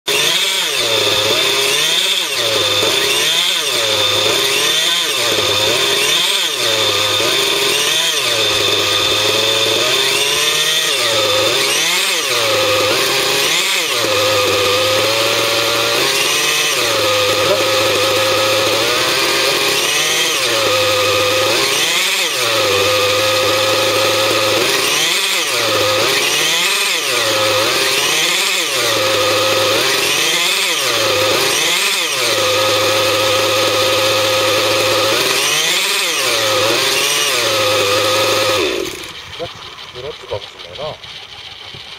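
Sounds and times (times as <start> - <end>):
rc helicopter running: 2.1 - 27.6, 35.9 - 41.9.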